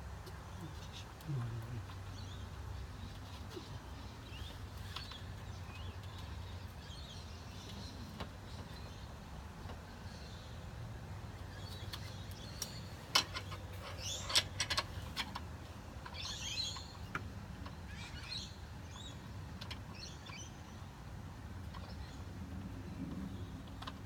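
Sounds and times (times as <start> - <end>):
small bird chirping: 0.2 - 20.9.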